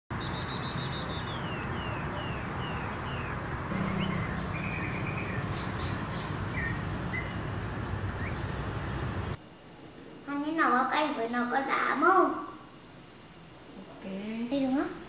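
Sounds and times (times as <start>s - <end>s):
birds chirping: 0.1s - 10.1s
distant street traffic hum: 0.1s - 15.0s.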